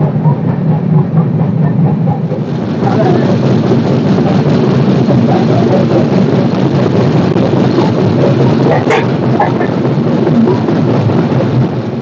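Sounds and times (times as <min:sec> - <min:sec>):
train rumble inside coach: 0:00.0 - 0:12.0.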